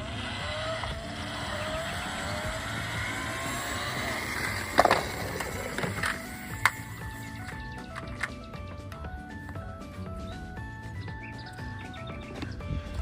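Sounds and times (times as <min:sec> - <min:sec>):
car engine revving: 0:00.0 - 0:07.7.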